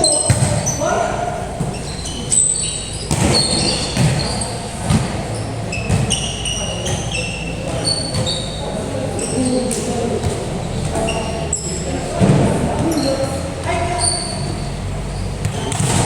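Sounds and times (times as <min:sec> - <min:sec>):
basketball bouncing: 0:00.0 - 0:00.8, 0:03.0 - 0:08.5, 0:15.4 - 0:16.0
sneaker squeaks on floor: 0:00.0 - 0:16.0.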